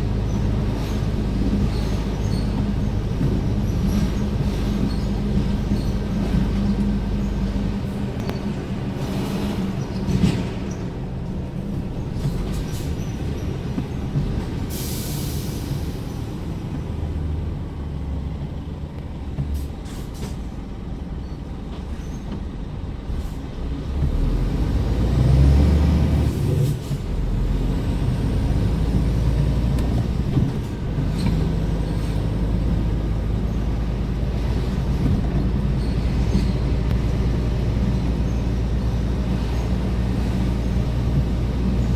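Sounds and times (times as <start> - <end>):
truck diesel engine running: 0.0 - 23.4, 24.0 - 41.9.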